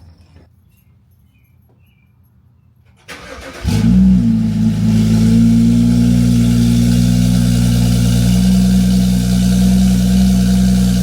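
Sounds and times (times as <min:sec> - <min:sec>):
car engine loud idle: 0:03.6 - 0:11.0.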